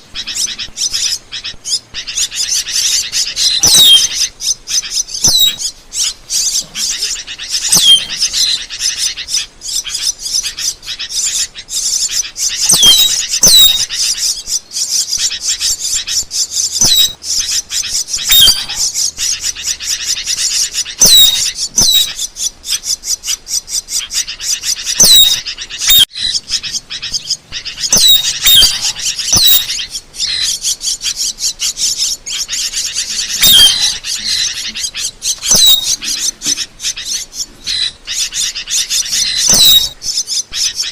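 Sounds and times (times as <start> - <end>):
starling falling whistles: 0.0 - 23.5, 24.2 - 40.9
starling chattering clicks and squeaks: 0.0 - 40.9.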